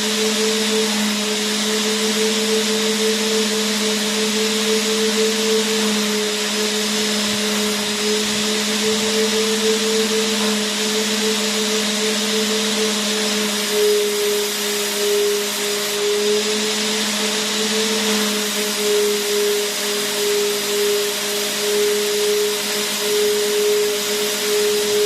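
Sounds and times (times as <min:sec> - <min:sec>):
vacuum cleaner motor running: 0:00.0 - 0:25.0.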